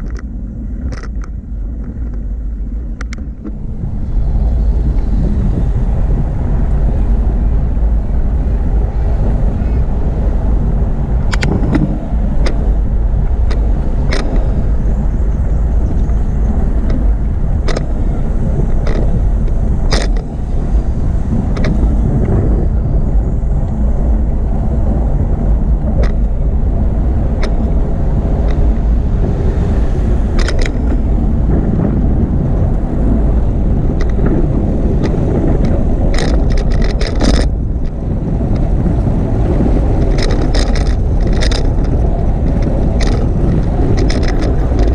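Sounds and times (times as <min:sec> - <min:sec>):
bicycle clicks and rattles: 0:00.0 - 0:05.2, 0:11.1 - 0:22.7, 0:25.1 - 0:44.9
wind rumble on microphone: 0:00.0 - 0:44.9.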